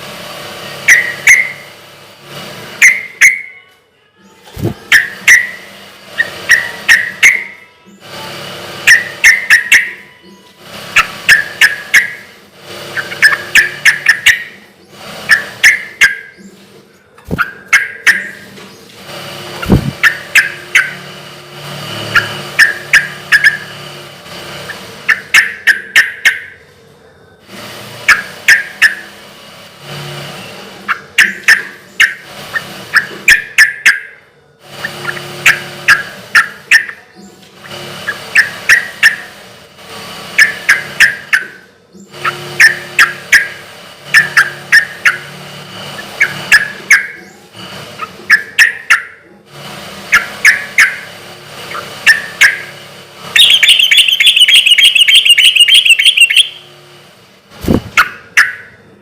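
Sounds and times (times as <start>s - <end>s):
bird chattering song: 0.9s - 1.7s, 2.8s - 8.1s, 8.9s - 12.3s, 13.0s - 16.7s, 17.3s - 18.9s, 19.6s - 21.0s, 22.1s - 23.7s, 53.4s - 56.7s
bird singing sharp bright notes: 53.4s - 56.7s.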